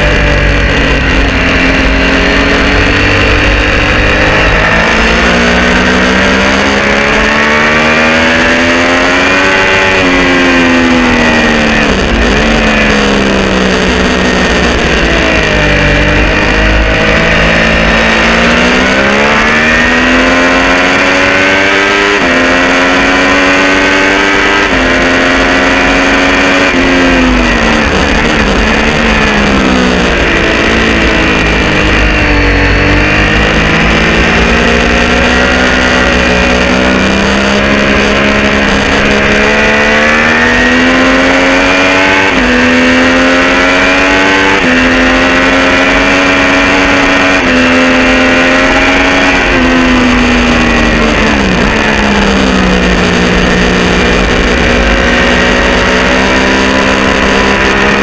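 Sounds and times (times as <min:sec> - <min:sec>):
low wind rumble: 0:00.0 - 0:58.0
motorcycle engine revving: 0:00.0 - 0:58.0.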